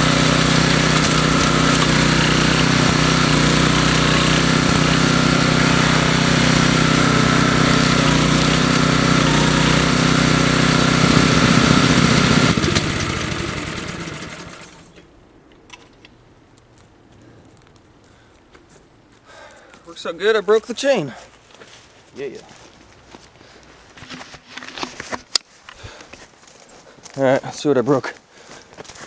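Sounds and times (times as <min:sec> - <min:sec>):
mower engine running and winding down: 0:00.0 - 0:15.0.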